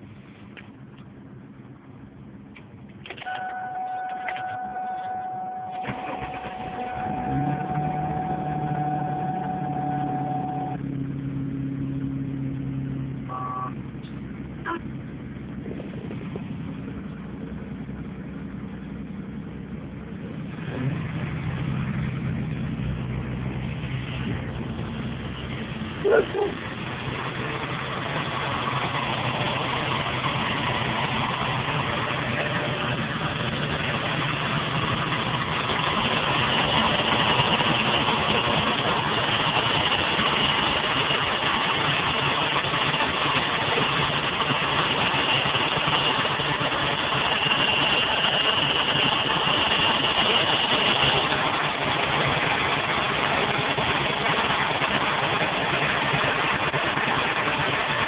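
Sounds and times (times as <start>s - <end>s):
car engine idling: 0.0s - 58.0s
high-pitched squeal: 3.2s - 11.0s, 20.5s - 58.0s.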